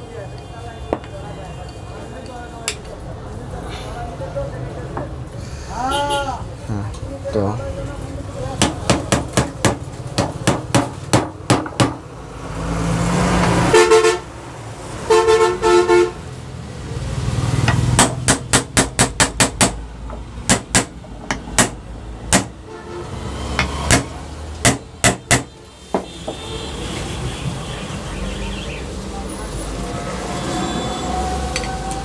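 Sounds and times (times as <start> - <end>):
low traffic rumble: 0.0 - 32.0
vehicle horn honking: 13.7 - 14.3, 15.1 - 16.2, 22.6 - 23.2, 25.4 - 28.9, 30.2 - 31.3.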